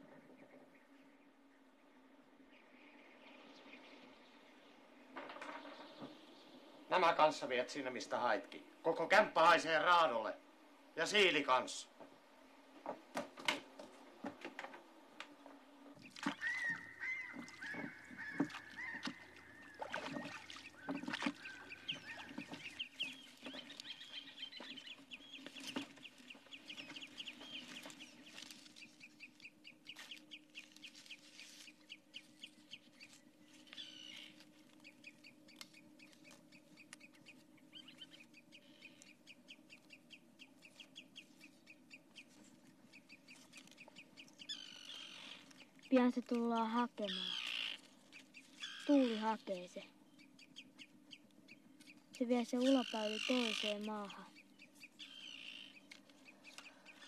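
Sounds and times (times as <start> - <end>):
steady low hum: 0.0 - 46.5
birds calling: 0.0 - 57.0
fast chattering bird notes: 52.5 - 54.3.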